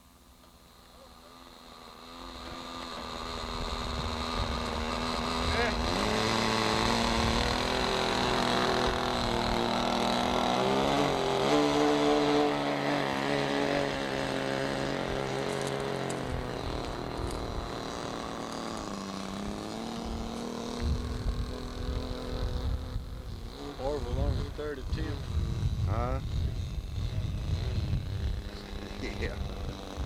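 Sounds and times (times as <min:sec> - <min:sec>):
model airplane engine whining: 0:00.0 - 0:30.0
wind rumble on microphone: 0:03.4 - 0:10.0, 0:18.9 - 0:30.0.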